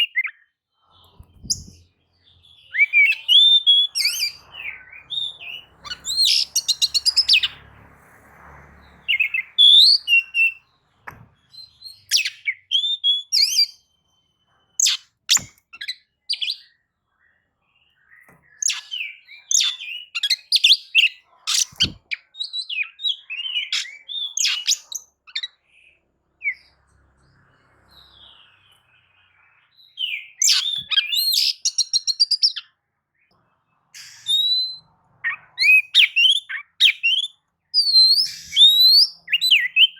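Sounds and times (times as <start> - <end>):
bird whistles and chirps: 0.0 - 7.7, 8.8 - 16.8, 18.0 - 25.7, 28.0 - 32.8, 34.0 - 39.9
rapid bird trill: 2.6 - 7.6, 34.0 - 39.9.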